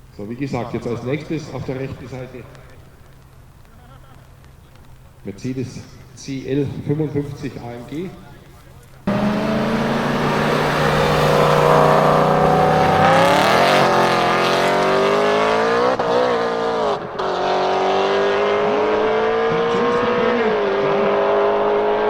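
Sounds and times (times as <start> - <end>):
car engine accelerating: 9.1 - 22.0.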